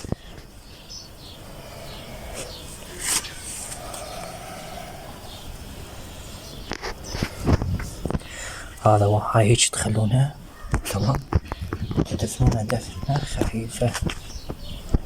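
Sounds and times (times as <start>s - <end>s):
faint chirps: 0.0s - 15.0s
brief scrape or rustle: 2.9s - 3.8s.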